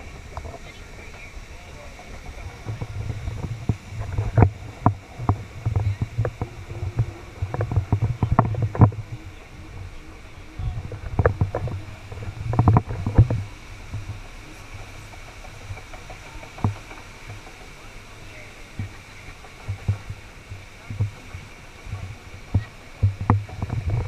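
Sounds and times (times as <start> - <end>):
muffled low rumbling: 0.0 - 24.0.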